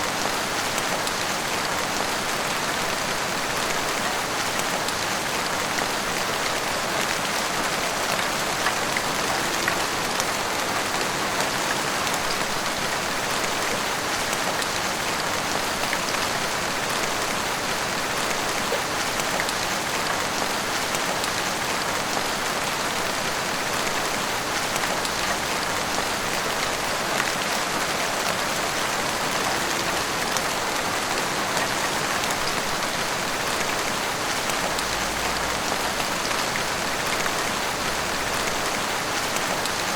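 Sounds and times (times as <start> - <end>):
heavy rain on rooftops and street: 0.0 - 39.9.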